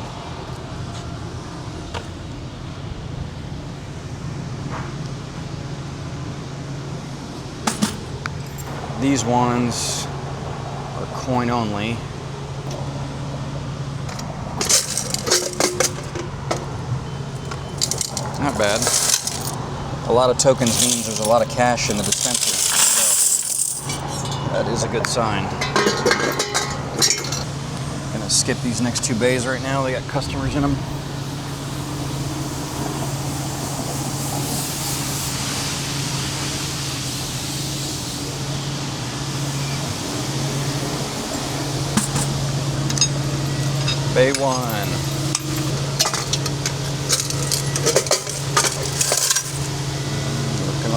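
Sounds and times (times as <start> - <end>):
coins clinking and rattling: 14.6 - 16.3, 17.4 - 19.6, 20.6 - 24.3, 42.0 - 49.7
pressure washer spray hissing: 31.1 - 44.2.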